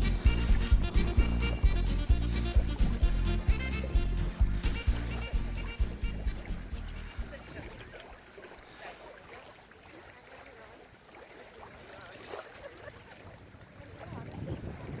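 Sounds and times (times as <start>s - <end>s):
wind rumbling on microphone: 13.0s - 15.0s.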